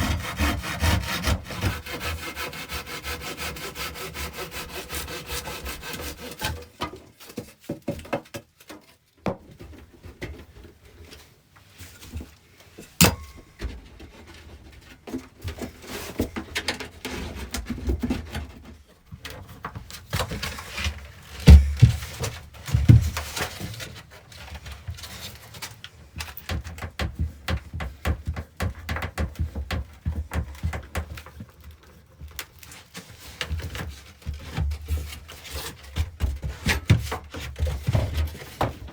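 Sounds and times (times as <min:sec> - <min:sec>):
wood being handled: 0:19.7 - 0:23.6
heavy thumps: 0:21.5 - 0:22.2.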